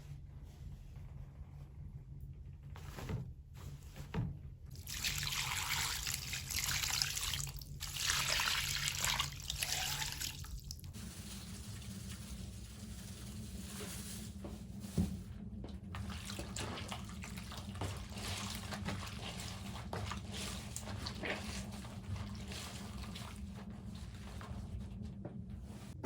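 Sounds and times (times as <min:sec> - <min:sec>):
water trickling and splashing: 0:04.7 - 0:11.0, 0:16.0 - 0:23.4.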